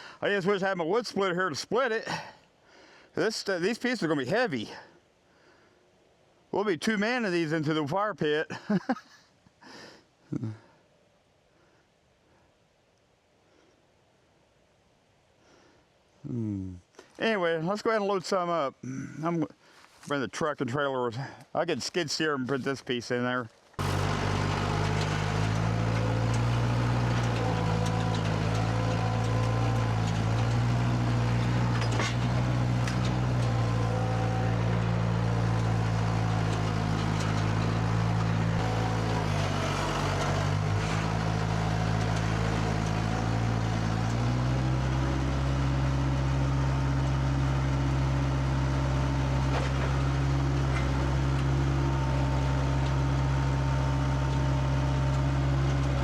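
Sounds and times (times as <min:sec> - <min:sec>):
heavy vehicle engine running: 0:00.0 - 0:00.2, 0:23.8 - 0:56.0.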